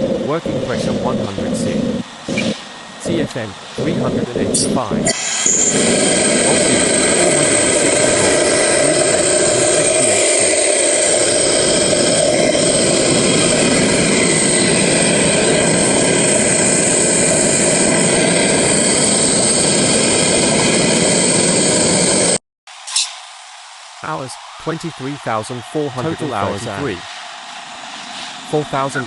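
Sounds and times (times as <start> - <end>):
air compressor running: 0.0 - 22.4.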